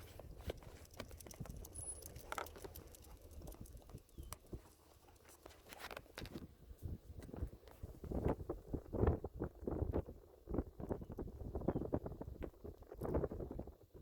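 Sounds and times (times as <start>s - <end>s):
wind on microphone: 6.3s - 14.0s.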